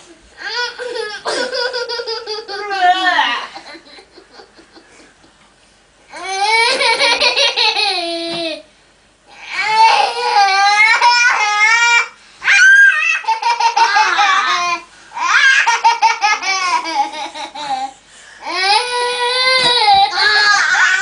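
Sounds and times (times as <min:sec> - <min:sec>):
children giggling: 0:00.8 - 0:05.4, 0:06.4 - 0:08.3
child squealing: 0:09.4 - 0:14.5, 0:19.6 - 0:21.0.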